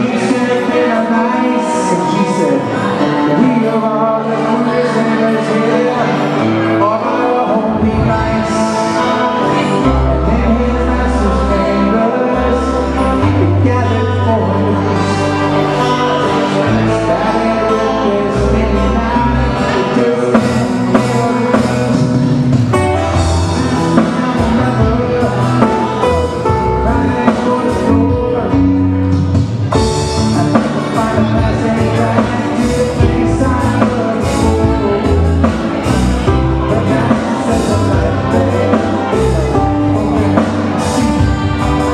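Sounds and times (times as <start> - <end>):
hawaiian style band music: 0.0 - 41.9
plucked guitar: 0.0 - 41.9
stepping bass line: 7.7 - 41.9.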